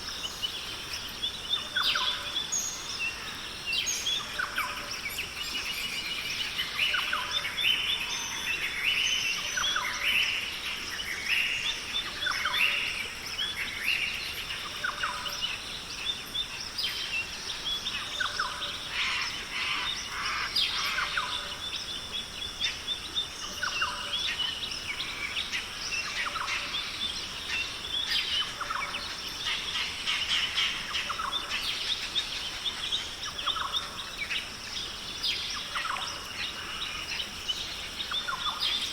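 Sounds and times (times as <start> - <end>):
steady high-pitched hiss: 0.0 - 38.9
many birds calling: 16.9 - 38.9.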